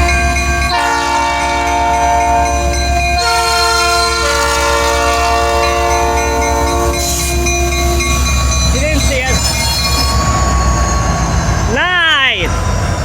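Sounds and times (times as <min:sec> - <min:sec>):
locomotive air horn chord: 0:00.0 - 0:07.2
diesel locomotive rumble: 0:00.0 - 0:13.0.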